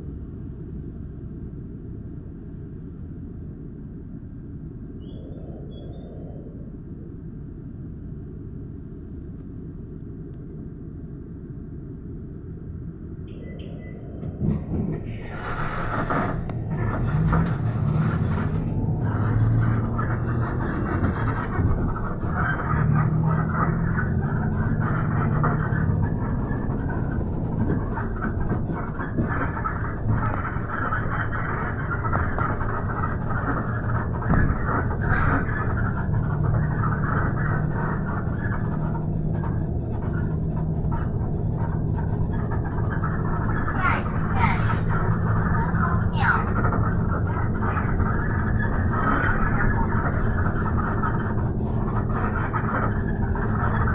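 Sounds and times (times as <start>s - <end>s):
bus engine hum: 0.0s - 53.9s
road rumble: 0.0s - 53.9s.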